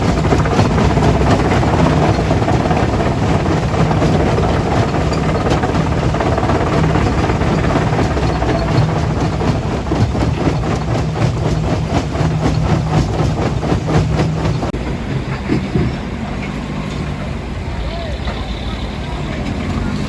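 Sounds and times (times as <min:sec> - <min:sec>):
rock and metal rattling: 0:00.0 - 0:15.9
low diesel engine drone: 0:00.0 - 0:20.0.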